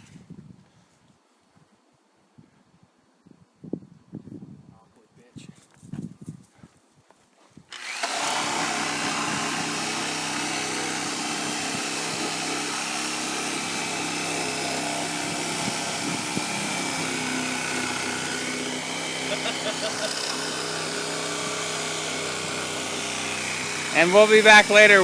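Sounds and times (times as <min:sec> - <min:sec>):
motor running steadily: 0:07.8 - 0:25.0.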